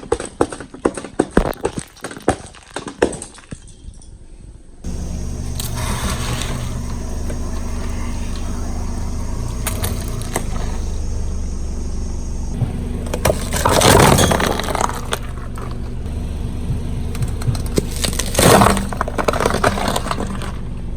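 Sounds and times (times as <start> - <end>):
tyre crushing object: 0.9 - 3.2, 12.5 - 20.6
car engine running: 4.9 - 20.9.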